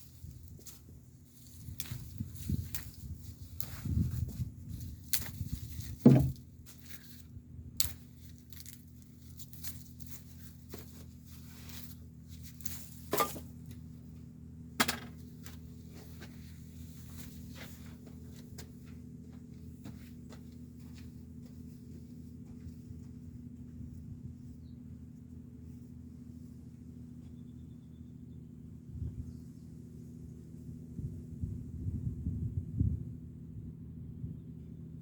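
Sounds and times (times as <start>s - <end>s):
objects knocking and rustling: 5.7s - 6.4s.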